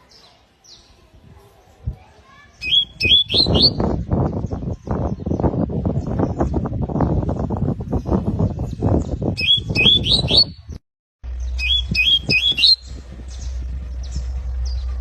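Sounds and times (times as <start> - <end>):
canary whistling: 2.6 - 3.8, 9.4 - 10.6, 11.6 - 12.9
steady low hum: 11.2 - 15.0
low knocks and rumble: 12.8 - 15.0.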